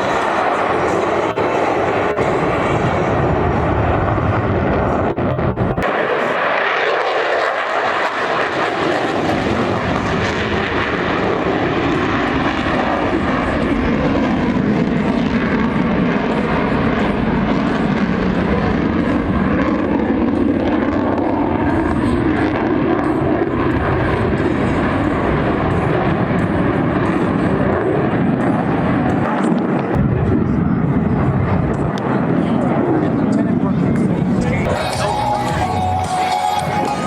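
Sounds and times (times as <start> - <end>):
loud jet noise: 0.0 - 37.0.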